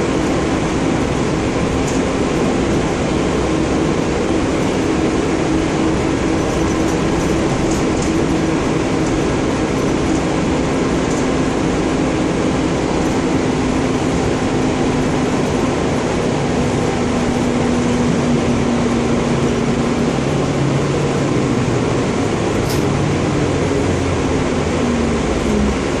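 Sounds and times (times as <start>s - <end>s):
bus engine humming: 0.0s - 26.0s.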